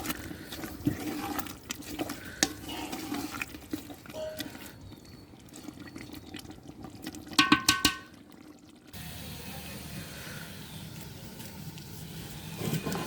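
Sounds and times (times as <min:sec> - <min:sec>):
liquid sloshing in a pot: 0:00.0 - 0:09.0.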